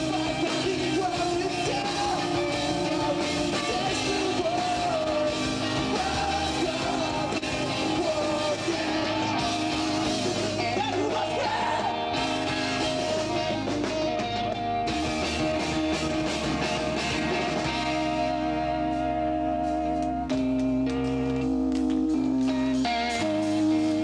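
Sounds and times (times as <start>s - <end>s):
person singing: 0.0s - 12.6s
electric guitars: 0.0s - 24.0s
rock band playing live: 0.0s - 24.0s.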